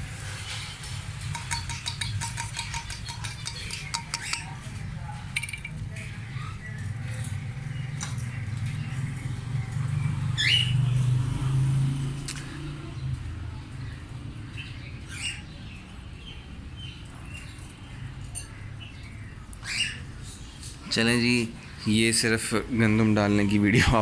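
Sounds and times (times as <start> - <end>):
parrots chirping: 0.9 - 5.0, 8.8 - 11.0, 14.5 - 15.8, 18.4 - 20.6.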